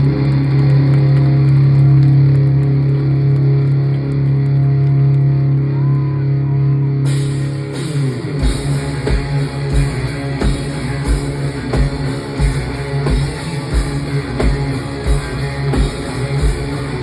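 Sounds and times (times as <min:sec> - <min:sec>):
distorted guitar chord: 0:06.8 - 0:17.0
drums and cymbals: 0:07.1 - 0:17.0.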